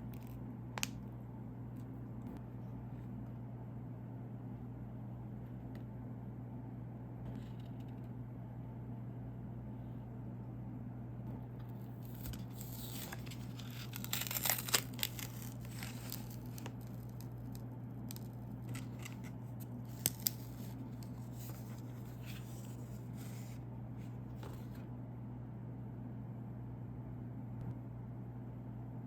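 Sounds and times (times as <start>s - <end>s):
snack wrapper tearing and crinkling: 12.1s - 19.3s, 19.9s - 22.0s.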